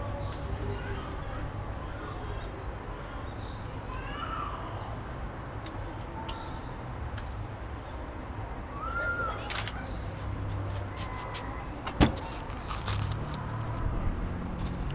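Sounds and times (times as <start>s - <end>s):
small birds chirping: 6.0s - 8.0s.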